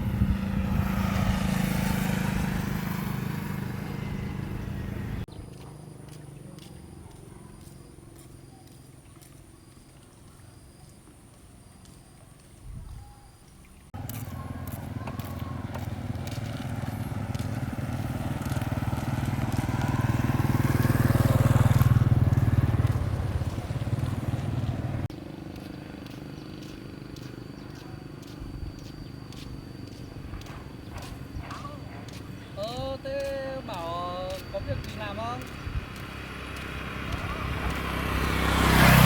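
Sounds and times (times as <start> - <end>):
vehicle engine running: 0.0 - 10.4, 13.9 - 39.0.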